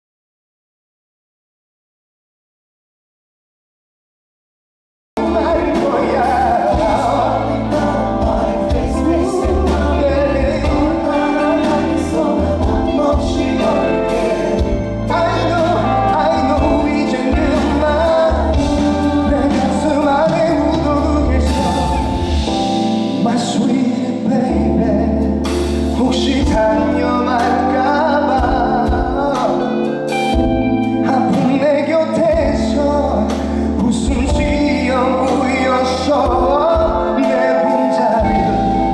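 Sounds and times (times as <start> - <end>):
heavy bass line: 5.2 - 23.3
man singing with band: 5.2 - 38.9.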